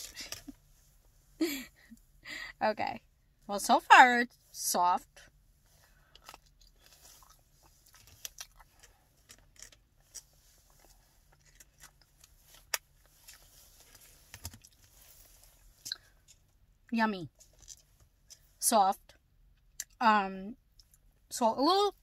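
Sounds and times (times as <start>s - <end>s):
person chewing: 6.0s - 14.9s.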